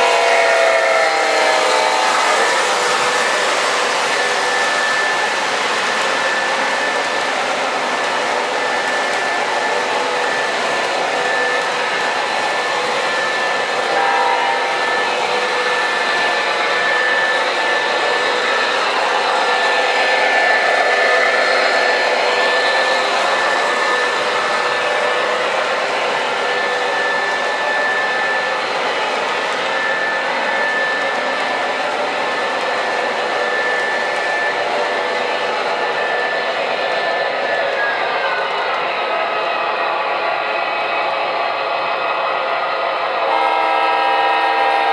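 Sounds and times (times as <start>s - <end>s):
model train whirring: 0.0s - 44.9s.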